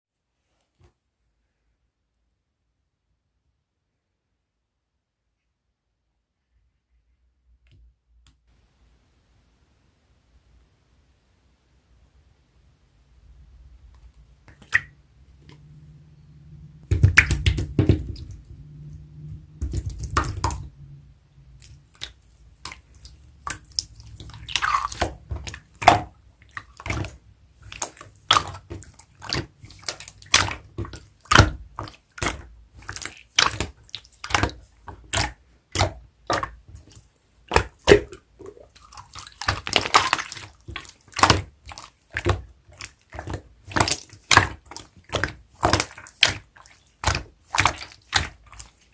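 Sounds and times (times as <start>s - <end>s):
slime squishing by hand: 13.4s - 16.0s, 16.6s - 48.9s
slime clicking and popping: 16.8s - 18.4s, 21.6s - 42.4s.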